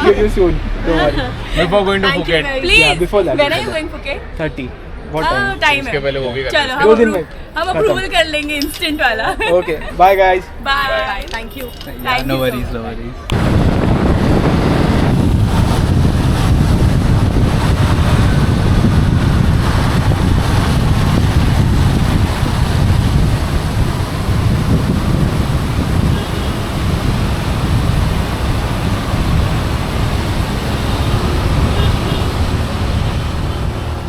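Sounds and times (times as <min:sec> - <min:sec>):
wind buffeting microphone: 0:13.3 - 0:34.0.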